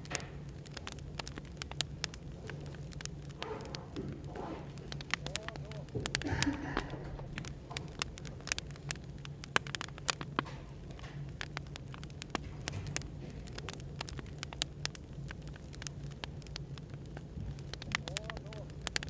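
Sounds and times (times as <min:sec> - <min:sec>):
firewood crackling and popping: 0:00.0 - 0:19.0
low background hum: 0:00.0 - 0:19.0.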